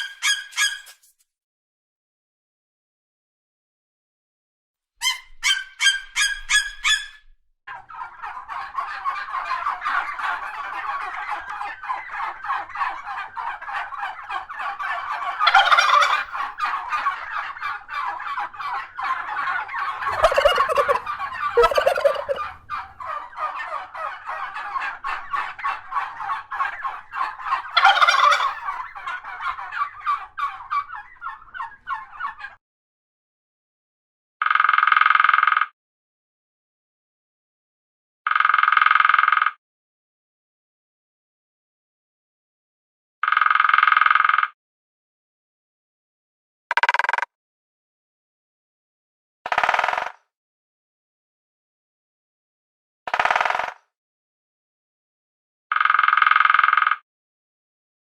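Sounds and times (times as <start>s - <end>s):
turkeys gobbling: 0.0s - 1.0s, 5.0s - 32.6s.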